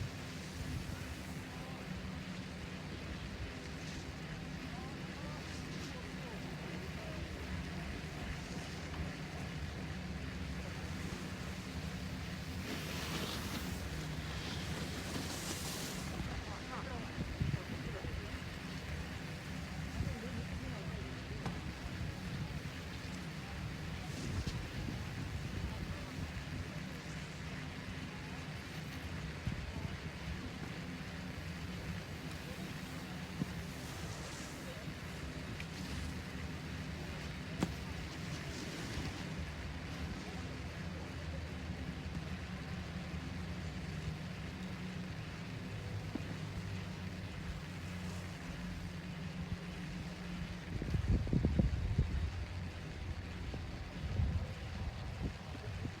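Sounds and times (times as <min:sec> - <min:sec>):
low engine rumble: 0:00.0 - 0:56.0
low mechanical hum: 0:00.0 - 0:56.0
rushing hiss: 0:10.7 - 0:16.6.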